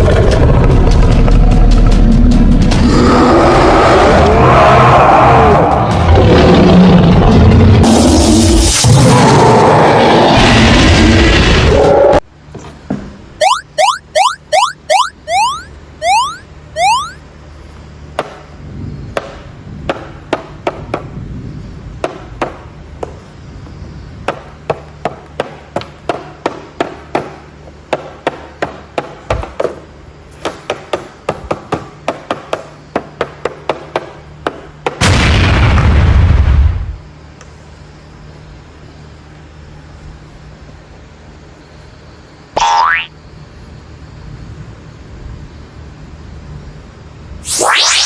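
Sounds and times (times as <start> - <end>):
rising whistle chirps: 13.4 - 17.2, 47.4 - 48.0.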